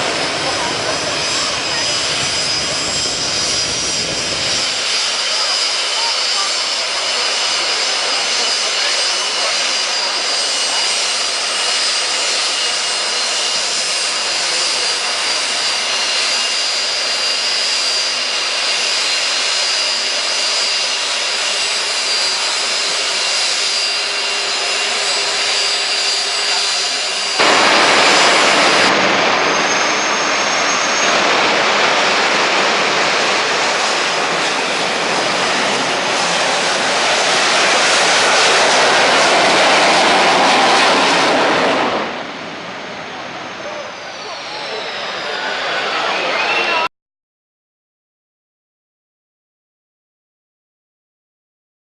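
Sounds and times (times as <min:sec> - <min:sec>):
jet engine whine and roar: 0:00.0 - 0:46.9.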